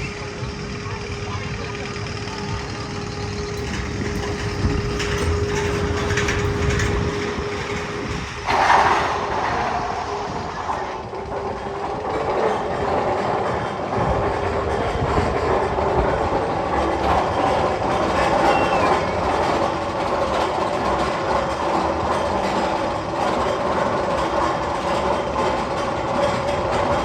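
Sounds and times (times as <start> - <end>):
train running on rails: 0.0 - 27.0
falling whistle-like tone: 18.4 - 19.2.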